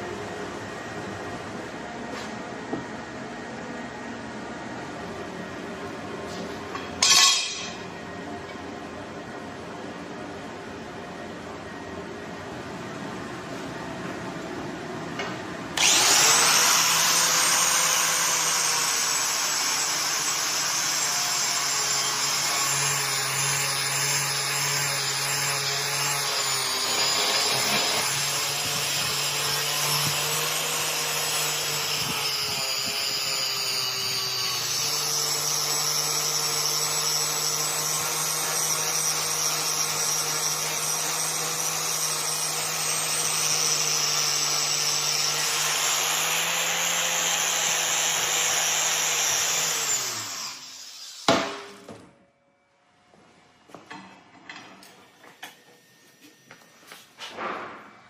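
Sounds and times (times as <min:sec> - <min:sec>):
electric grinder on steel: 0:15.8 - 0:51.3.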